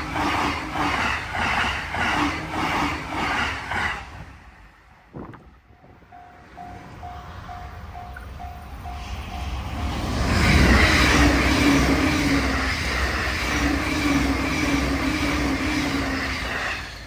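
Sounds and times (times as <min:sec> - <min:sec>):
train wheel and rail noise: 0:00.0 - 0:17.0
crossing warning bell ringing: 0:05.6 - 0:10.8.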